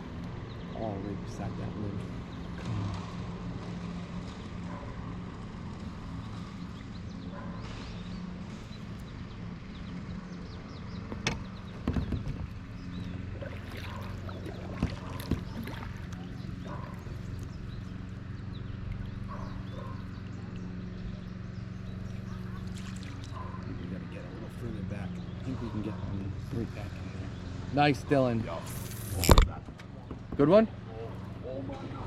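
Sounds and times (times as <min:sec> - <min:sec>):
steady low hum: 0:00.0 - 0:32.0
sharp knocks and clicks: 0:11.0 - 0:12.6.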